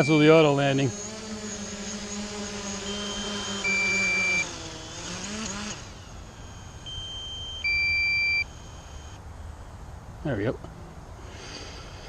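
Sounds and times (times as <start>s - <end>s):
remote controller two-tone beeps: 0.0s - 0.5s, 2.8s - 4.5s, 6.5s - 8.5s
drone propellers humming: 0.0s - 12.0s.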